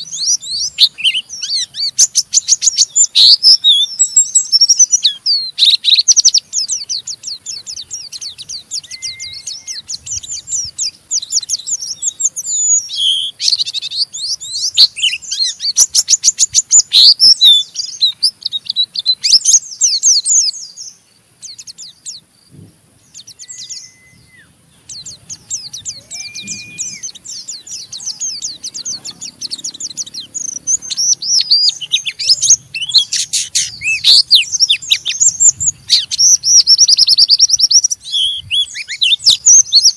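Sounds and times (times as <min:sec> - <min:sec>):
bird twittering high chirps: 0:00.0 - 0:39.9
short clear bird whistles: 0:08.2 - 0:16.1, 0:23.1 - 0:28.5.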